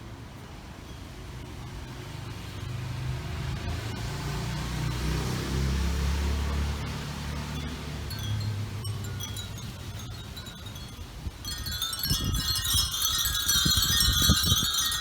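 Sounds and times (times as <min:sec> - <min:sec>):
car passing: 0:01.9 - 0:12.0.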